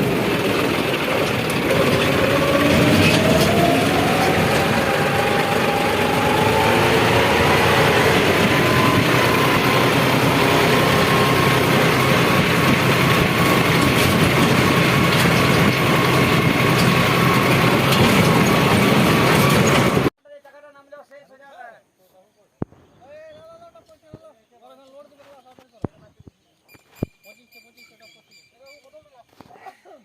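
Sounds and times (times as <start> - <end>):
tractor engine whining under load: 0.0 - 20.1.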